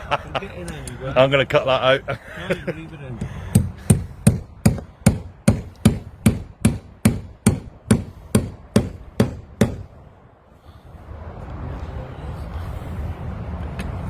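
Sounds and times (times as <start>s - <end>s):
hammer blows on metal box: 3.2s - 10.0s
steady noise: 3.3s - 11.7s.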